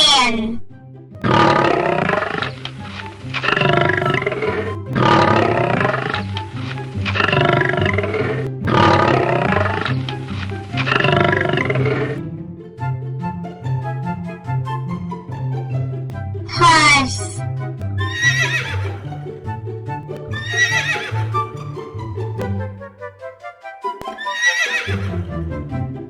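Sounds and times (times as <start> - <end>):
music with repeating bass line: 1.0 - 22.9.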